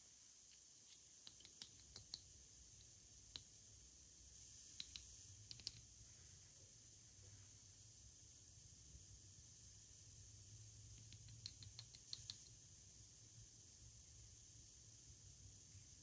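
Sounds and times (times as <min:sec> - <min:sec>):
steady hiss: 0:00.0 - 0:16.0
light clicks and ticks: 0:04.8 - 0:05.9, 0:11.0 - 0:12.6.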